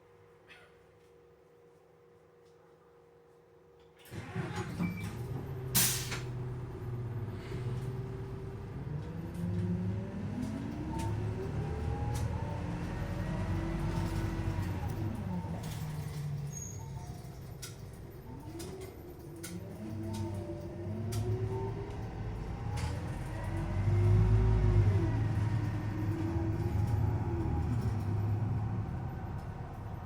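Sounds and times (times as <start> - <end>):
bus engine accelerating: 4.1 - 30.0
air brake hiss: 5.8 - 6.3.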